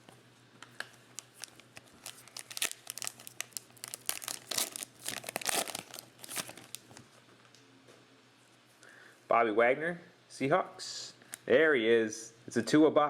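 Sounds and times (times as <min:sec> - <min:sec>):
plastic wrapper tearing and crinkling: 0:01.2 - 0:07.0.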